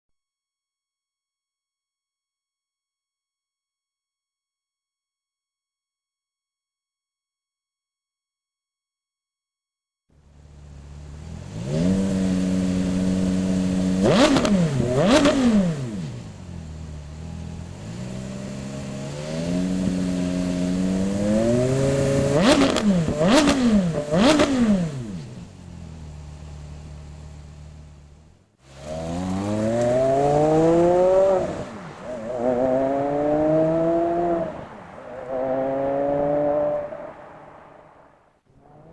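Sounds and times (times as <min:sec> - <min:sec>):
car engine idling and revving: 0:10.1 - 0:38.9.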